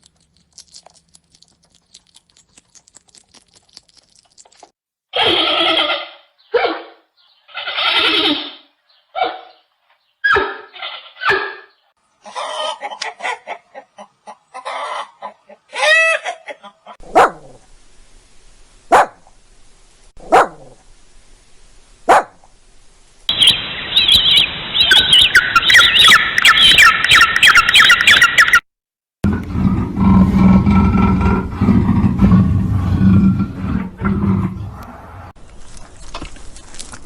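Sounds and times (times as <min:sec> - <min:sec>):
dog barks: 0:06.5 - 0:07.0, 0:09.2 - 0:09.6, 0:17.0 - 0:17.6, 0:18.9 - 0:19.2, 0:20.2 - 0:20.8, 0:22.1 - 0:22.4
flock of birds chirping: 0:23.3 - 0:28.6.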